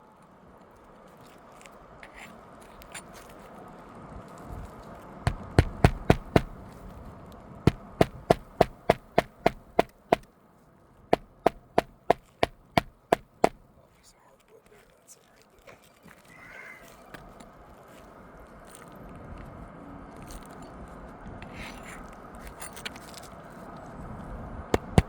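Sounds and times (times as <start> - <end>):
hammer striking roofing nails: 5.3 - 6.6, 7.7 - 10.3, 11.2 - 13.6, 24.8 - 25.0.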